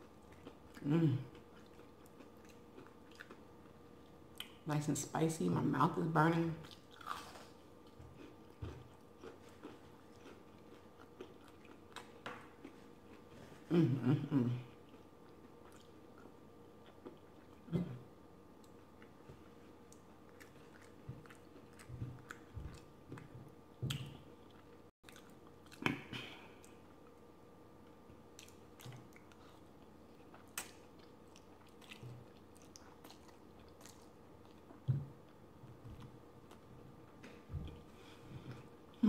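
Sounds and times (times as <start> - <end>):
person chewing and biting: 0.1 - 3.8, 6.6 - 13.3, 18.6 - 27.0, 28.3 - 35.4.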